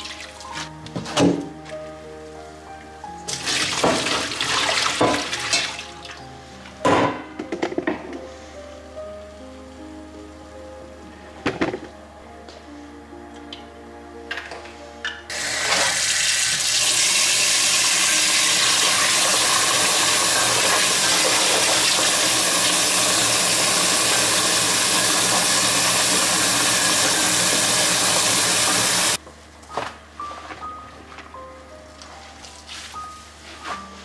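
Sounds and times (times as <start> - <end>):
tap running into sink: 3.3 - 5.8.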